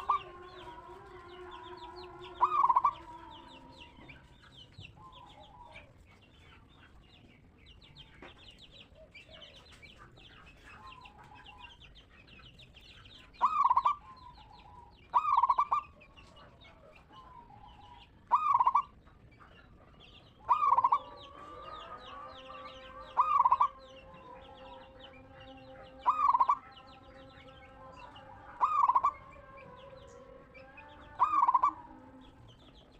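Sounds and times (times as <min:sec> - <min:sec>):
dove cooing: 0:00.0 - 0:06.1, 0:13.2 - 0:32.9
small birds chirping: 0:00.0 - 0:32.9.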